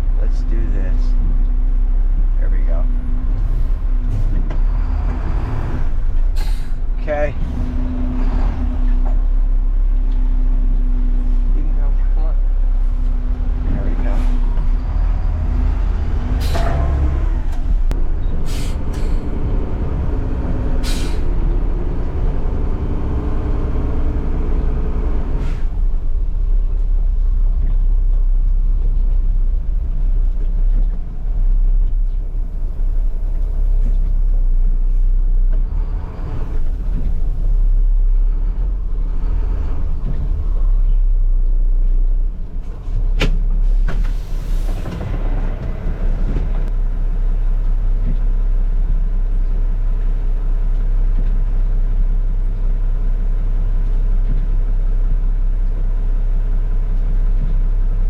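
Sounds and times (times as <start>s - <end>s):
garbage truck rumbling: 2.9s - 58.0s.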